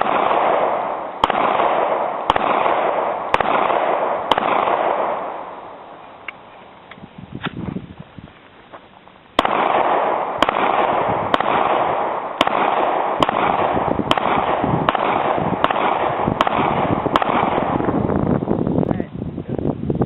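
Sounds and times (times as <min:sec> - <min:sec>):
pistol shots: 0:00.0 - 0:06.4, 0:09.4 - 0:18.2
steady rushing noise: 0:00.0 - 0:20.0.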